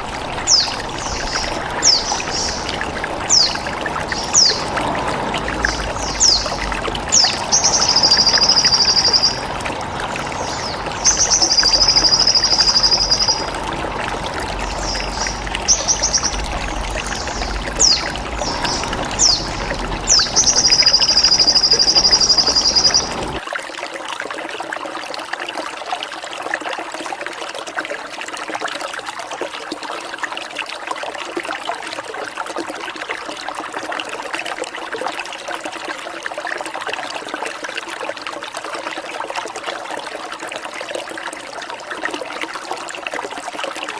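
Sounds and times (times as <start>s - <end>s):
water trickling: 0.0s - 43.9s
bird chirps: 0.3s - 4.8s, 5.6s - 9.5s, 10.2s - 13.7s, 14.5s - 23.4s.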